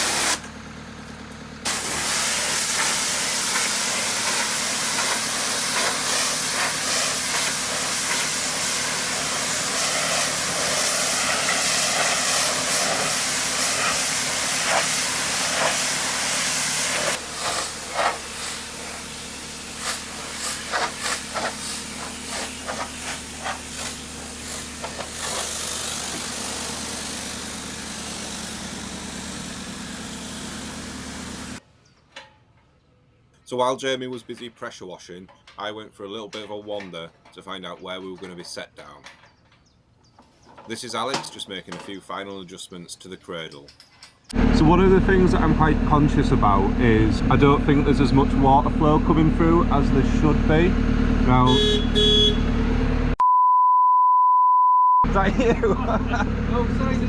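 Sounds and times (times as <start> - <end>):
pressure washer spraying: 0.0 - 0.5, 1.7 - 31.6
motor humming: 0.0 - 31.6.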